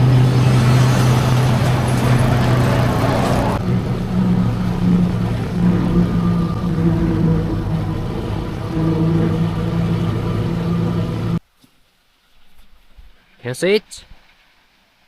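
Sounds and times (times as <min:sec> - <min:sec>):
motorbike engine cruising: 0:00.0 - 0:11.4
wind and road noise: 0:00.0 - 0:11.4.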